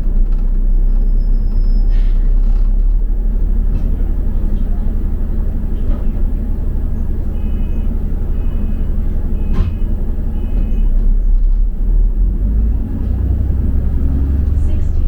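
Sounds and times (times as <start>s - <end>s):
bus engine rumble: 0.0s - 15.0s.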